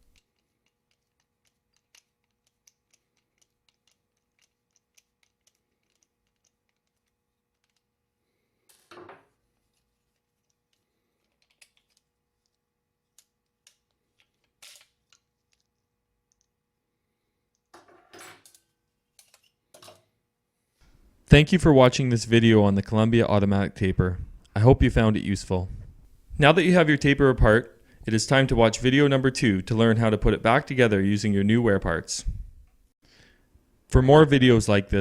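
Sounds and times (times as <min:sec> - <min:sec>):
small metal parts clicking: 0:00.0 - 0:07.9, 0:09.7 - 0:16.5.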